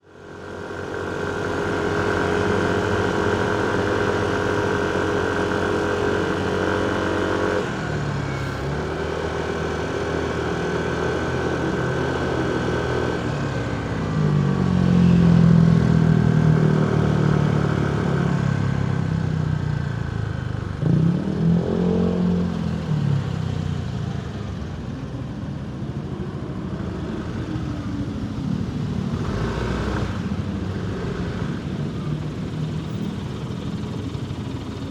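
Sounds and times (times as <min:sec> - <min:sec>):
motorcycle engine: 0:00.2 - 0:18.8.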